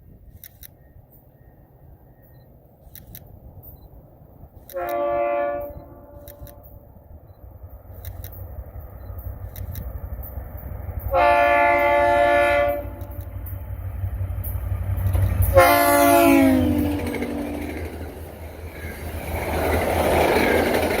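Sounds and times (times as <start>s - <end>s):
train cars clattering: 3.4s - 21.0s
locomotive air horn: 4.7s - 6.8s, 11.1s - 13.3s, 15.4s - 17.6s.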